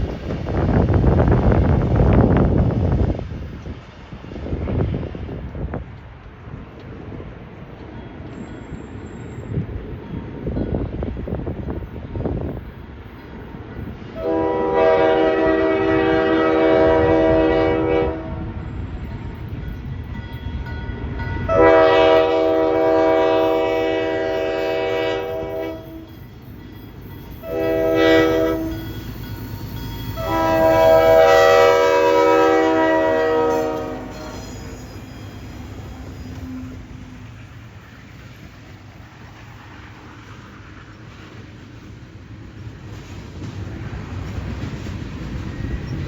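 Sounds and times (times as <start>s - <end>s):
train rumbling: 0.0s - 46.0s
locomotive horn blasts: 14.2s - 18.6s, 21.4s - 26.1s, 27.4s - 29.0s, 30.2s - 34.8s.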